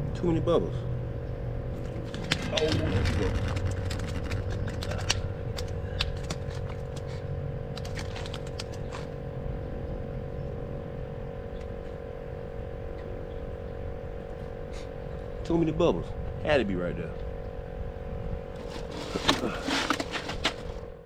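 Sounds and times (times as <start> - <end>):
motor drone: 0.0 - 21.0
sharp clicks and rattles: 2.0 - 7.1.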